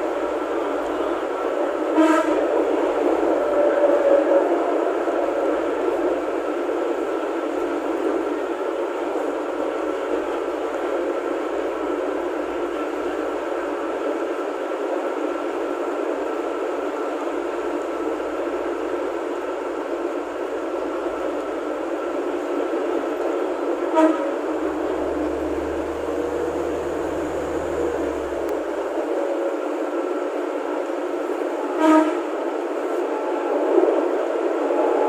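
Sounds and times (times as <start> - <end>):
diesel railcar running: 0.0 - 35.0
faint high hum: 24.4 - 29.3.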